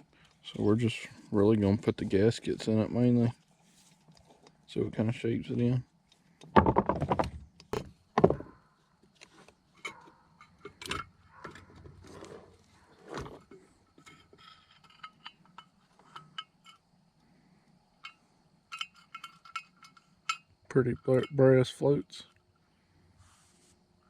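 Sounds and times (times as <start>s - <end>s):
small metal parts clinking: 9.8s - 11.7s, 13.5s - 16.9s, 18.0s - 21.8s.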